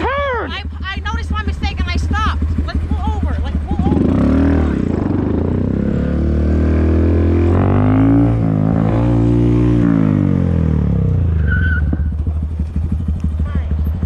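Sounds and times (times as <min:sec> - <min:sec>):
motorcycle engine running: 0:00.0 - 0:14.0
steady low rumble: 0:00.0 - 0:14.0.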